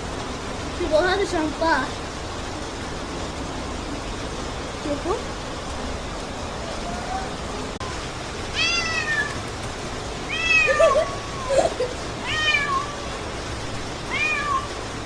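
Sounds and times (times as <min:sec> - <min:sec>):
cat meowing: 0:08.5 - 0:09.6, 0:10.3 - 0:13.2, 0:14.1 - 0:14.8.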